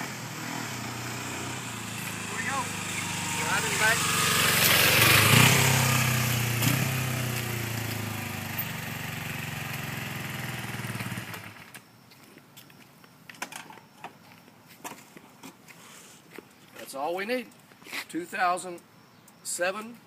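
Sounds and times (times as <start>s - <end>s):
motorcycle engine idling: 0.2s - 11.7s.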